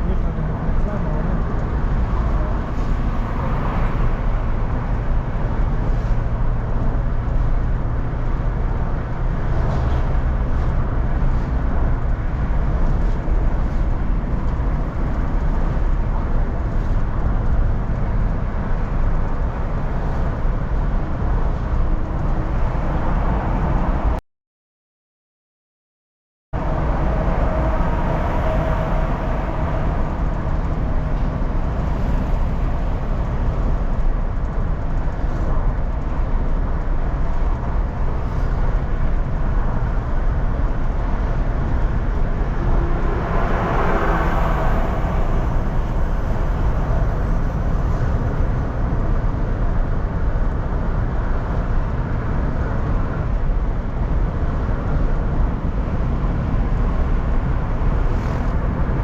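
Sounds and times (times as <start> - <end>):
car road and engine noise: 0.0 - 24.2, 26.6 - 59.0.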